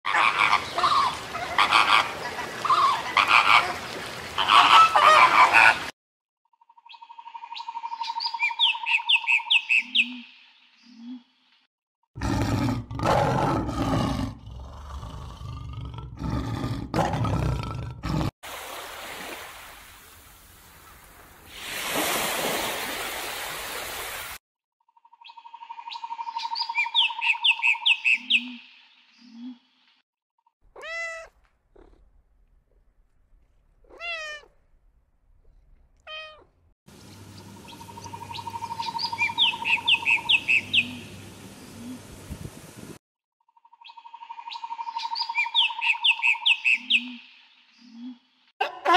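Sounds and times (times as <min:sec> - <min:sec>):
leopard roaring and growling: 0:12.2 - 0:18.4
surf rushing: 0:21.5 - 0:24.4
cat meowing: 0:30.7 - 0:32.0, 0:33.8 - 0:34.6, 0:36.0 - 0:36.5.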